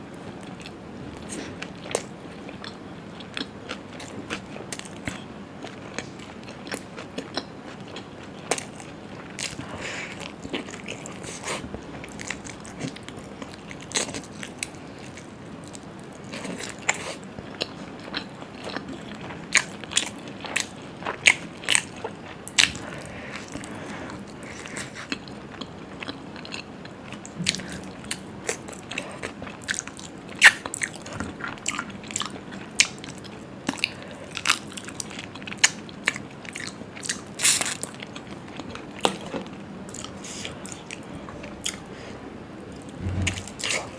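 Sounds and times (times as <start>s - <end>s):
person chewing food: 0.4s - 43.9s.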